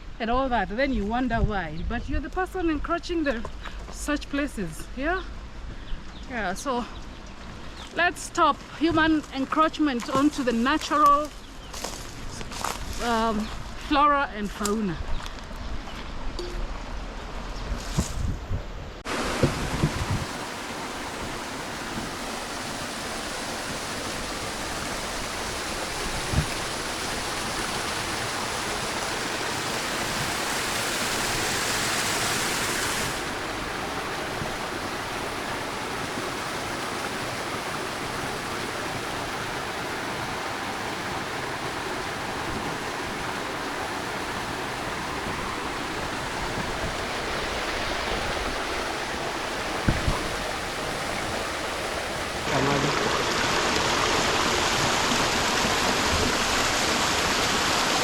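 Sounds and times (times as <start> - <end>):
river rushing: 19.0 - 58.0.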